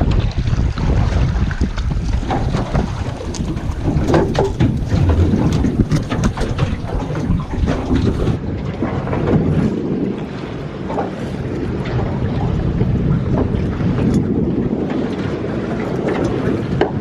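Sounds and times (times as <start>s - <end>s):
wind buffeting microphone: 0.0s - 17.0s
sharp knocks and clatter: 1.6s - 8.4s.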